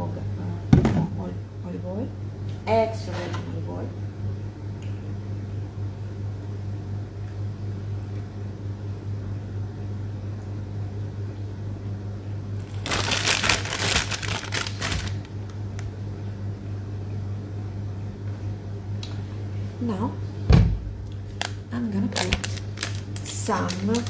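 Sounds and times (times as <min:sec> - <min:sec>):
low electrical hum: 0:00.0 - 0:24.0
packaging crinkling: 0:12.6 - 0:16.0, 0:21.1 - 0:24.0.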